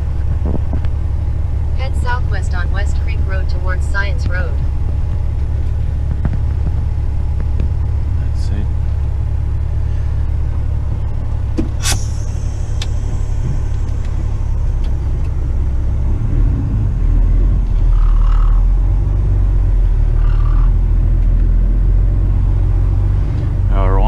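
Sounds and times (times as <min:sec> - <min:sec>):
truck diesel engine rumbling: 0:00.0 - 0:24.0
sharp click: 0:11.6 - 0:13.0
brief air hiss: 0:11.8 - 0:14.3.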